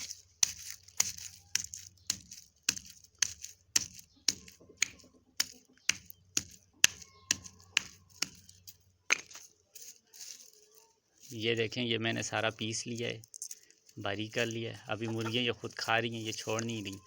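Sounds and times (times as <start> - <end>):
garlic pounded on stone: 0.0 - 9.4.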